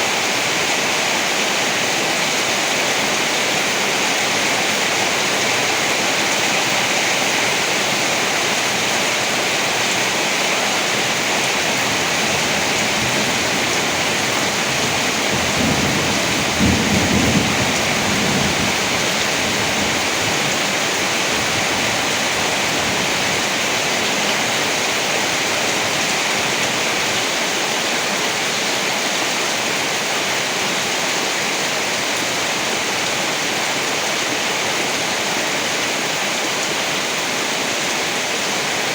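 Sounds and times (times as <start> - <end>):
heavy rain: 0.0 - 38.9
low roll of thunder: 14.8 - 19.9.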